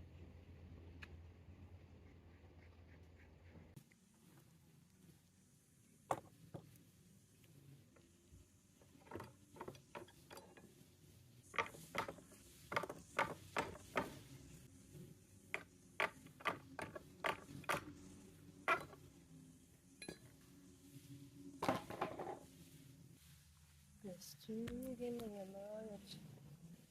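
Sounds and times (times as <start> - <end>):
hard objects clicking and knocking: 15.5 - 17.9.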